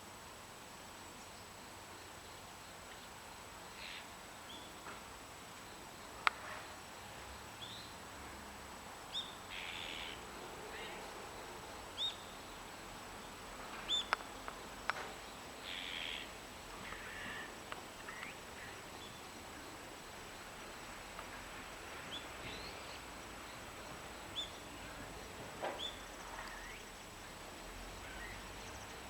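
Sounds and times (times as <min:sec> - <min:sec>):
harsh rasping bird calls: 0:09.5 - 0:10.2, 0:15.6 - 0:19.2
birds chirping: 0:11.9 - 0:19.7, 0:22.0 - 0:27.0.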